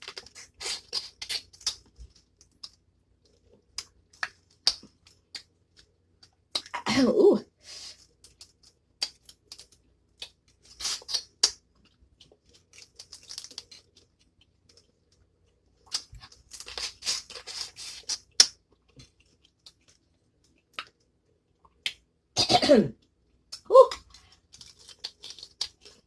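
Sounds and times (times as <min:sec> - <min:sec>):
seafood shells crackling: 0:00.0 - 0:06.7, 0:07.8 - 0:21.1, 0:23.4 - 0:26.0.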